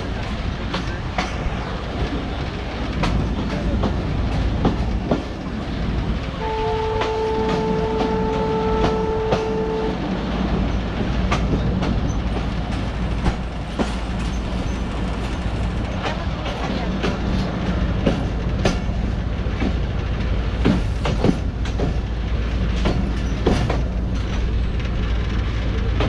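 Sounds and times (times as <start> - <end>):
train rumble: 0.0 - 26.0
wheels clacking over rail joints: 0.0 - 26.0
train horn blast: 6.4 - 10.1.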